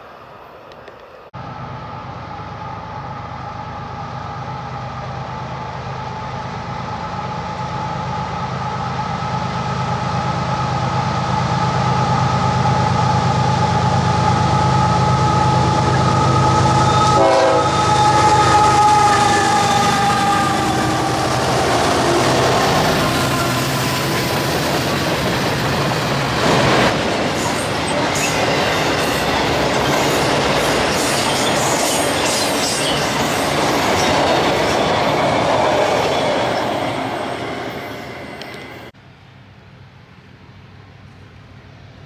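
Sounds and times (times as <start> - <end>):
locomotive engine rumble: 0.4 - 42.0
locomotive air horn: 14.4 - 24.8.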